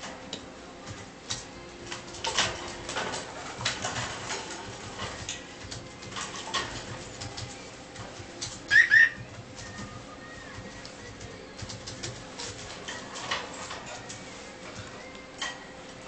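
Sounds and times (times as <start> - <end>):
cockatiel chirping: 8.7 - 9.2.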